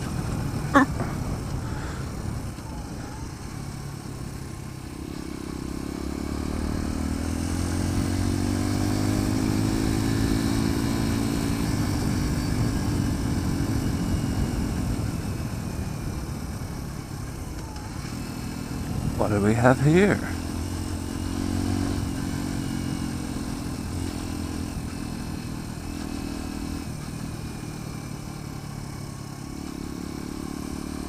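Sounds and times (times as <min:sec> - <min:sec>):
wind noise: 0:00.0 - 0:03.4.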